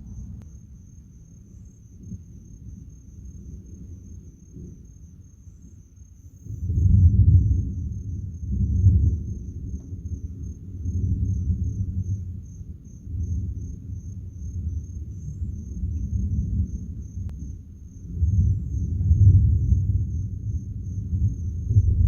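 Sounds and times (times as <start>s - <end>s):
thunder rumbling: 6.4s - 22.0s.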